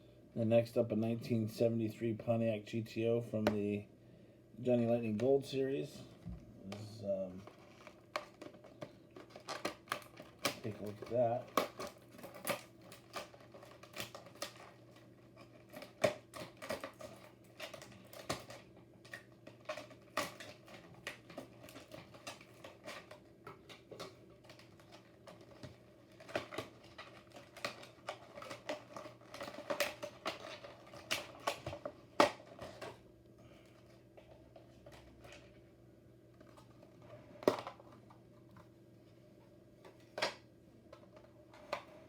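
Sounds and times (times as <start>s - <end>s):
low steady hum: 0.0s - 42.0s
plastic packaging clicks and taps: 7.4s - 33.0s.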